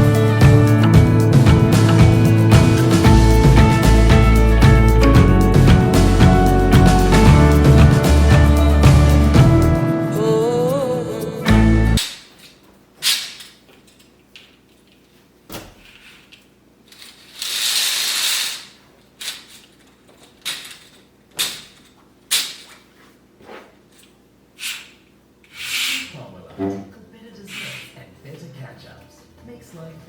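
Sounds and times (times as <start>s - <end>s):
kitchen items clicking and knocking: 18.5s - 22.8s.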